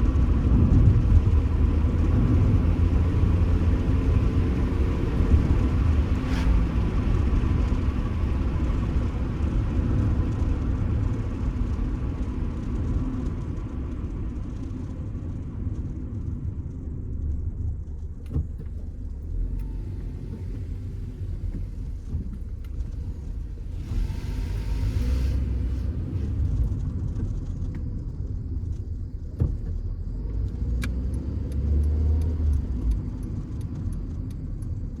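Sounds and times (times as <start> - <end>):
car engine hum: 0.0 - 35.0
road rumble: 0.0 - 35.0
brief hiss: 6.2 - 7.0.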